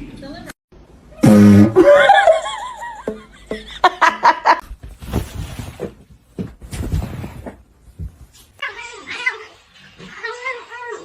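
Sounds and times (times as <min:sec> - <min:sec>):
person laughing: 0:01.7 - 0:04.6
rustling: 0:04.6 - 0:08.6.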